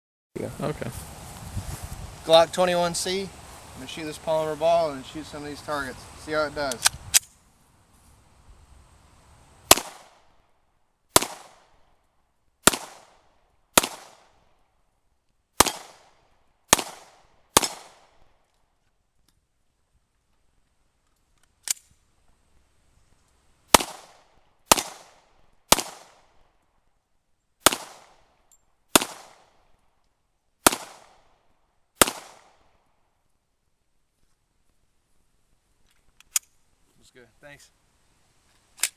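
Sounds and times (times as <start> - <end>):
pistol shots with echo: 9.7 - 10.2, 11.2 - 11.7, 12.6 - 13.2, 13.8 - 14.4, 15.6 - 18.2, 23.7 - 26.3, 27.6 - 28.3, 28.9 - 29.6, 30.6 - 31.3, 32.0 - 32.6.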